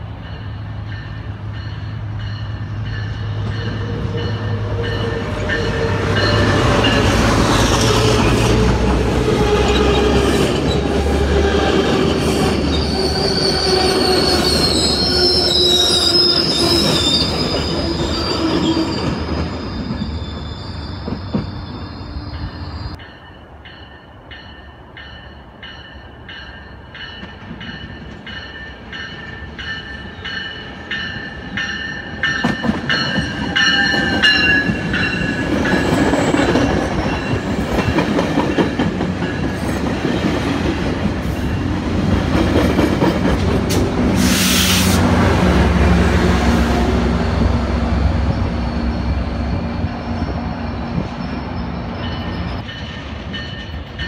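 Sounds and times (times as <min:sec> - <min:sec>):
train wheels clattering on rails: 0:26.4 - 0:44.9
brief loud hiss: 0:44.2 - 0:45.0.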